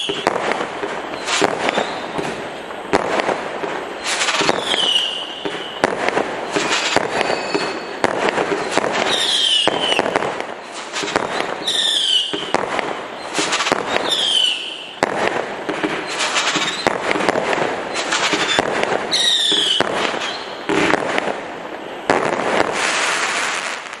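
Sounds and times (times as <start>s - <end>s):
firework whistles falling in pitch: 0.0s - 2.4s, 4.0s - 10.2s, 11.0s - 15.0s, 16.0s - 17.0s, 17.9s - 20.8s
firework cake firing shots: 0.0s - 21.4s, 22.0s - 24.0s
firework crackling: 0.0s - 24.0s.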